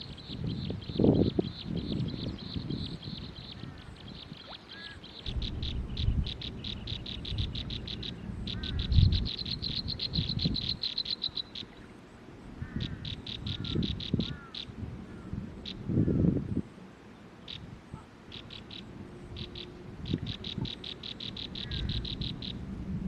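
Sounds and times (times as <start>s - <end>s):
faint chirps: 0.2s - 12.0s
animal clicking calls: 19.4s - 22.6s.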